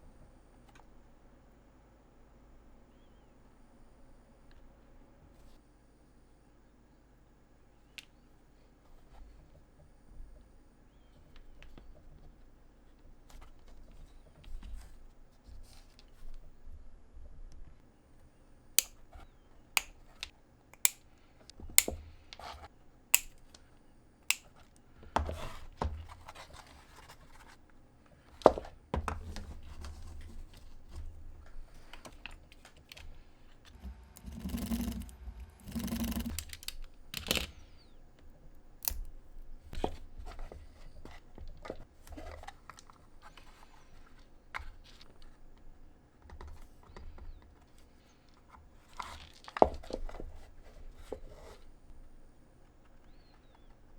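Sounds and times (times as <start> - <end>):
sharp clicks: 20.8 - 21.0, 23.2 - 23.4, 33.8 - 37.7.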